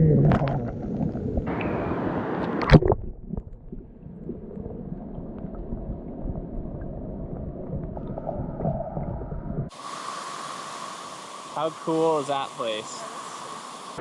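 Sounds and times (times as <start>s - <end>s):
waterfall rushing water: 9.7s - 14.0s.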